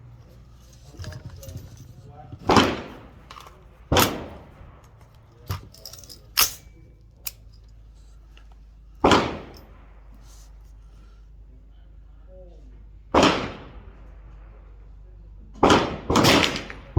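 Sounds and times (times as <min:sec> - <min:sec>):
rifle gunshots: 0:02.5 - 0:03.3, 0:03.9 - 0:04.8, 0:09.0 - 0:09.6, 0:13.2 - 0:13.8, 0:15.6 - 0:16.9.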